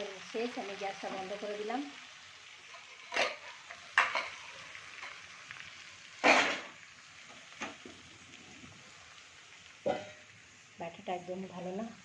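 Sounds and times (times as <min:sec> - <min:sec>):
faint sizzle: 0:00.0 - 0:12.0
spatula scraping a frying pan: 0:02.7 - 0:05.3, 0:09.8 - 0:10.2.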